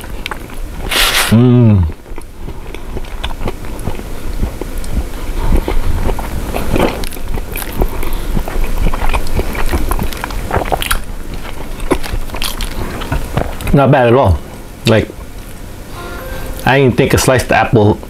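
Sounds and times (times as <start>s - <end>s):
person chewing sandwich: 0.0s - 13.8s.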